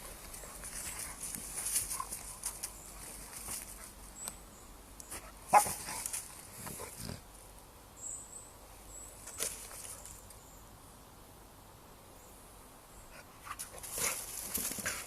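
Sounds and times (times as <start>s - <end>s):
dog barking: 5.5s - 5.8s.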